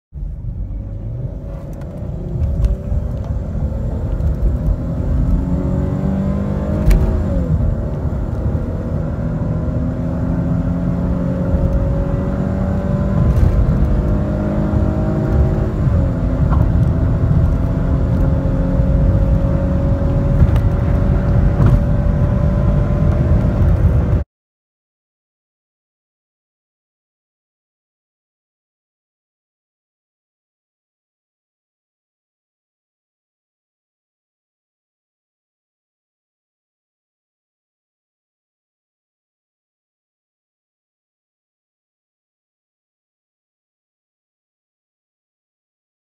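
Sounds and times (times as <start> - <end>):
low road rumble: 0.1 - 24.2
car engine accelerating: 0.2 - 24.2
gear upshifts: 0.2 - 24.2.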